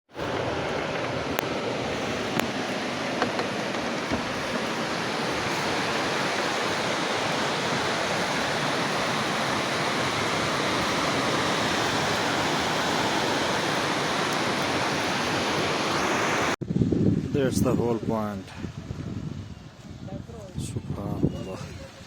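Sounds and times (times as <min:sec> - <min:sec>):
river water rushing: 0:00.1 - 0:16.6.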